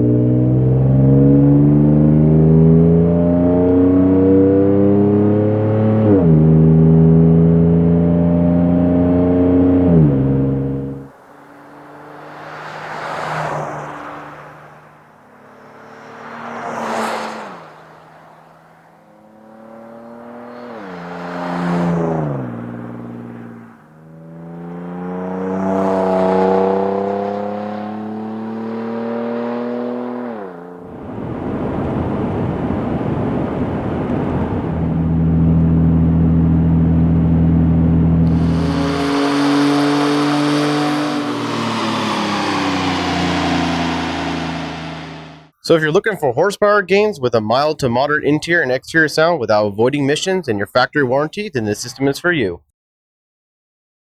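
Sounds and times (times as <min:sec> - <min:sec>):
car engine exhaust note: 0:00.0 - 0:11.1, 0:18.5 - 0:45.5.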